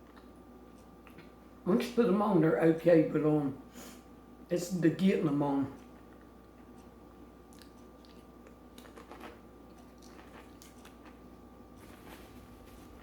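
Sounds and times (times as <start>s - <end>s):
chewing and crunching food: 0.0s - 1.4s, 5.8s - 13.0s.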